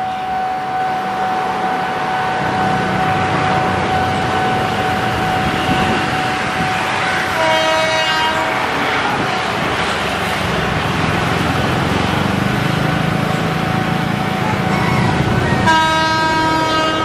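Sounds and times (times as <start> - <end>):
train horn: 0.0 - 9.3, 14.6 - 17.0
train wheels rumbling on rail: 0.0 - 17.0.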